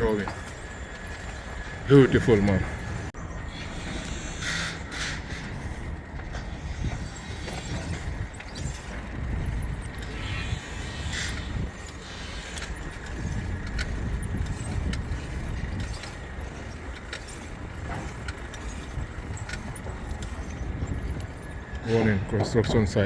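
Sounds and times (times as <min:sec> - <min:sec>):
low rumble of traffic: 0:00.0 - 0:23.0
small metallic jingles: 0:05.5 - 0:23.0.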